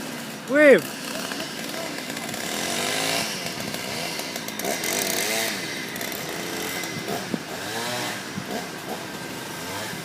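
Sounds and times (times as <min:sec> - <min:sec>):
chainsaw revving: 0:00.0 - 0:10.0.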